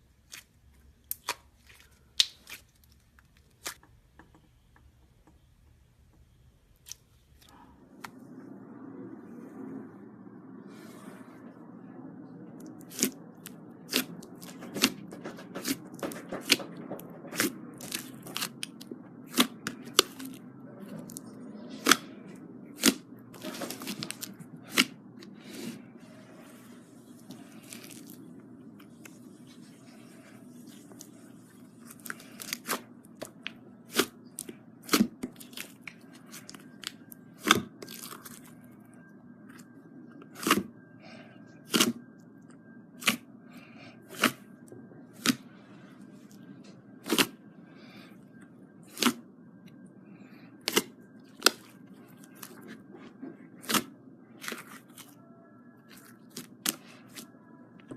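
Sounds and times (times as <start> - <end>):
slime crackling: 0.2 - 3.8, 12.7 - 20.4, 21.0 - 25.8, 26.5 - 38.6, 47.0 - 47.4.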